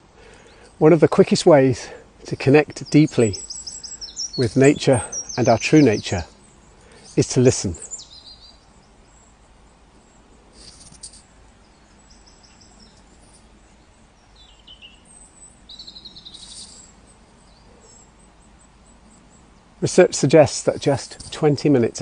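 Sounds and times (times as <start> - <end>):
breeze: 0.0 - 22.0
wild birds calling: 0.0 - 22.0
bird trilling: 2.8 - 9.3, 14.2 - 19.7.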